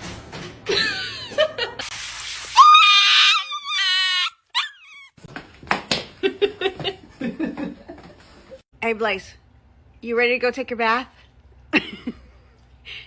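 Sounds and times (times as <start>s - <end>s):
dog whining: 2.8s - 5.2s.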